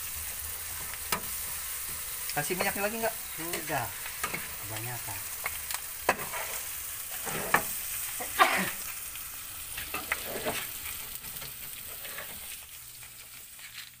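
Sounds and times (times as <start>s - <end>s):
fish frying in oil: 0.0s - 14.0s
metal spatula scraping pan: 6.0s - 8.8s, 9.8s - 12.6s.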